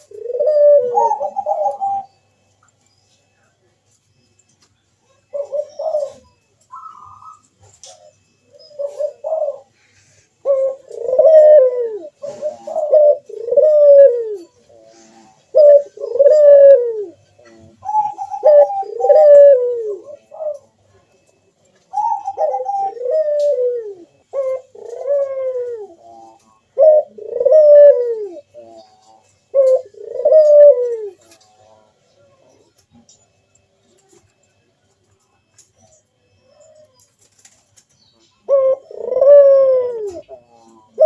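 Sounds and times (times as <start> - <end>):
dove cooing: 0.0 - 3.8, 5.0 - 41.0.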